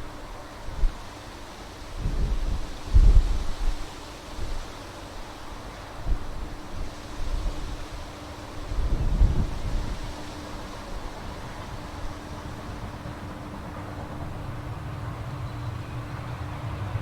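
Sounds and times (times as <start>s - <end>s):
wind buffeting microphone: 1.9s - 3.8s, 5.9s - 17.0s.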